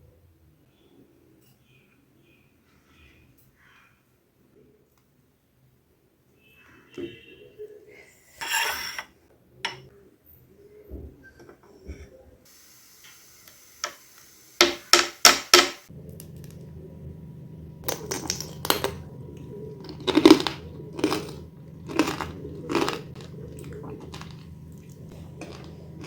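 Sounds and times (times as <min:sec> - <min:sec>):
steady low hum: 0:15.9 - 0:26.0
candy crunching: 0:17.8 - 0:26.0
hard candy cracking: 0:17.8 - 0:26.0.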